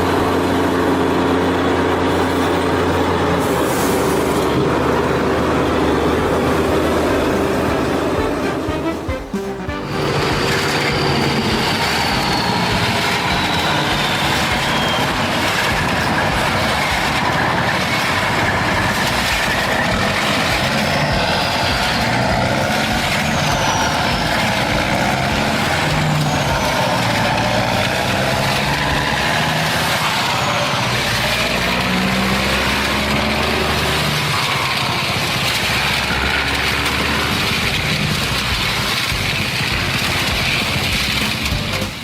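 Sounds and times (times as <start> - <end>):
heavy vehicle engine running: 0.0 - 42.0
faint falling high whistles: 1.2 - 31.6.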